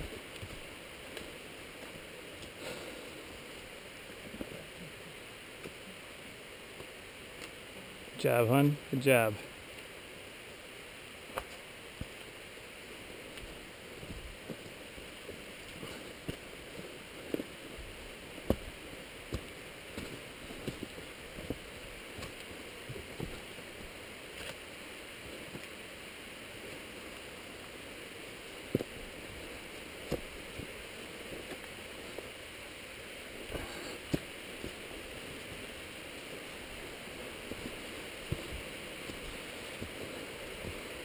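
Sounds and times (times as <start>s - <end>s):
flowing water: 8.8s - 41.0s.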